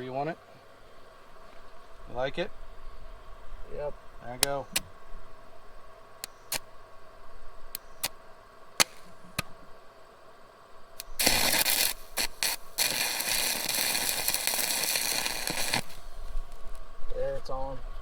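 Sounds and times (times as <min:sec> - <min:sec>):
sharp clicks: 0:06.2 - 0:06.7, 0:07.7 - 0:08.2, 0:11.0 - 0:16.0
welding arc crackling and hissing: 0:08.8 - 0:09.5, 0:11.0 - 0:17.8.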